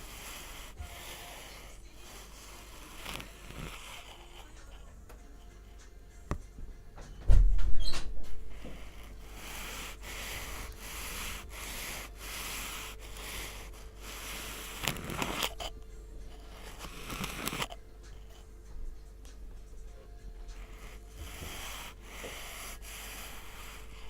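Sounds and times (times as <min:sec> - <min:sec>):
sand being scraped: 0:08.9 - 0:15.7.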